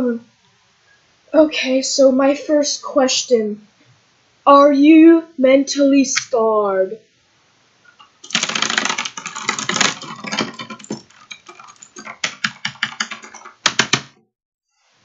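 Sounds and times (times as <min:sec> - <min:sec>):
dense clatter of clicks: 0:08.0 - 0:14.1.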